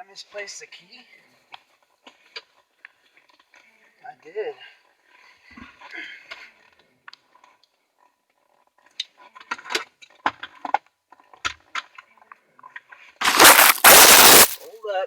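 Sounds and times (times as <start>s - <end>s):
loud crackling burst: 13.2s - 14.7s.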